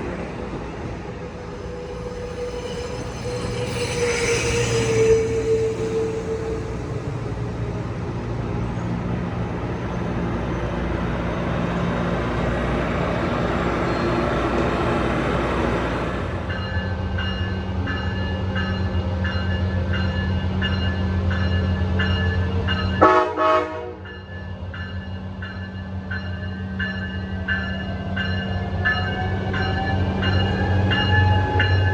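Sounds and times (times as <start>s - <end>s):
diesel train rumbling: 0.0s - 31.9s
train horn toots: 1.3s - 7.6s, 23.0s - 24.0s.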